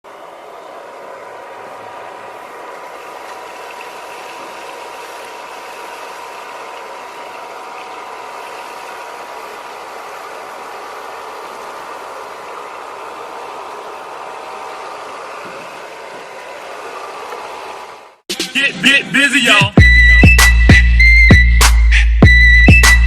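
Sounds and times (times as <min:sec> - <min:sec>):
vacuum fan motor whining: 0:00.0 - 0:18.2.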